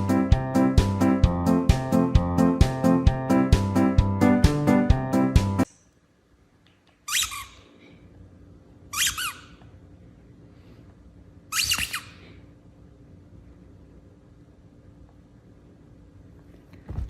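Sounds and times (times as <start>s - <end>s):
small animal squeaky calls: 7.1s - 7.7s, 8.9s - 9.6s, 11.5s - 12.2s.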